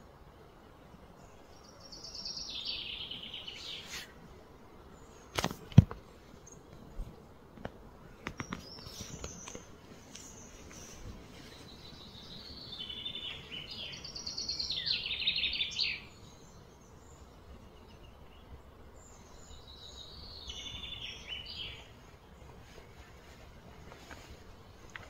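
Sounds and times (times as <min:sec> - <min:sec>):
faint outdoor hiss: 0:00.0 - 0:25.0
songbird trilling: 0:11.8 - 0:16.2, 0:19.7 - 0:21.8.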